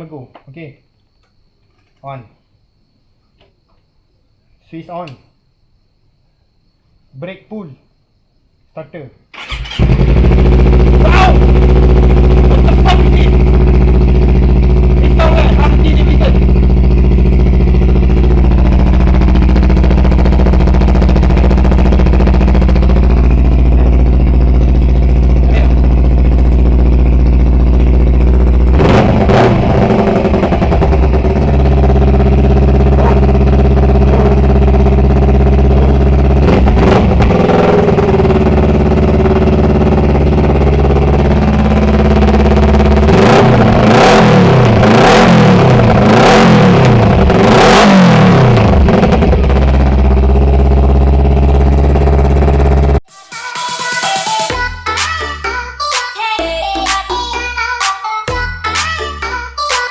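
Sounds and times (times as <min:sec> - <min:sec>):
engine throttle blips: 0:09.4 - 0:53.0
motorcycle engine idling: 0:09.4 - 0:53.0.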